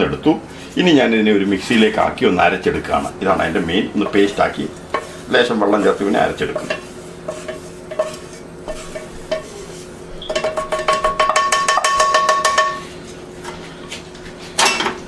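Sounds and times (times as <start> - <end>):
spoon scraping pan: 3.6 - 13.7
metal spoon clinking in pan: 10.2 - 12.8.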